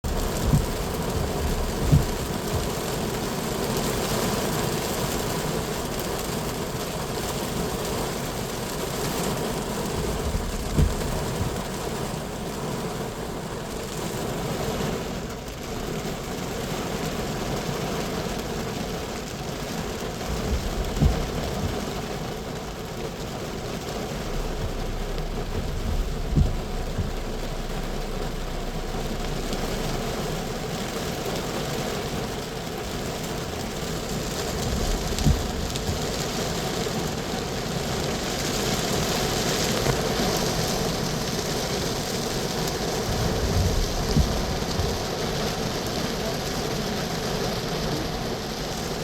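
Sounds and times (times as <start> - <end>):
low thumps: 0.0 - 3.1, 9.5 - 12.2, 20.2 - 22.2, 23.8 - 31.9, 32.8 - 36.6, 43.0 - 45.2
strong wind blowing: 24.3 - 30.9, 33.7 - 36.5.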